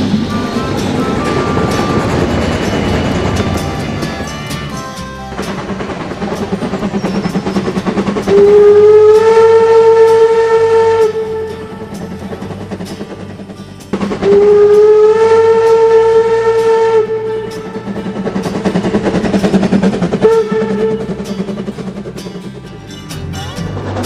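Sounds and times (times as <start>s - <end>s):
toy train running: 0.0s - 24.0s
toy train whistle blasts: 6.9s - 12.6s, 14.2s - 21.4s.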